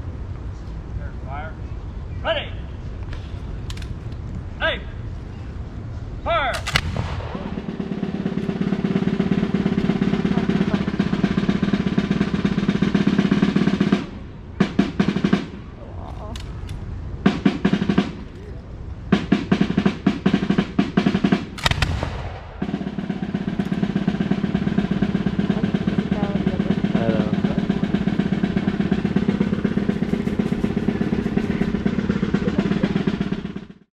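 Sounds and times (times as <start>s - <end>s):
snare drum beats and roll: 6.6s - 15.7s, 17.2s - 18.3s, 19.1s - 33.9s.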